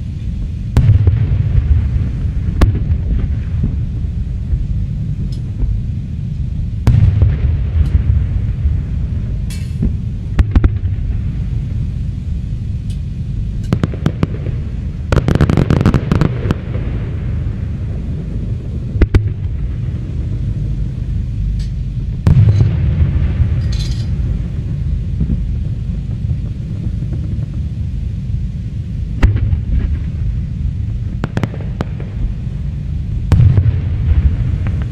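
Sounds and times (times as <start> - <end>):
distant fireworks rumble: 0.0 - 34.9
fireworks crackle: 0.0 - 34.9
fireworks bangs: 0.7 - 5.8, 6.8 - 12.2, 13.6 - 27.8, 29.2 - 34.9.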